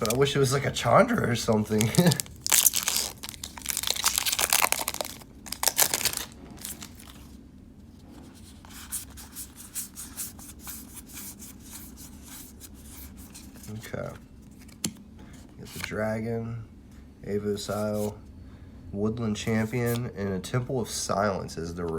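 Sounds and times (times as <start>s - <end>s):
wrapper tearing and crinkling: 0.0s - 0.6s, 1.4s - 7.3s.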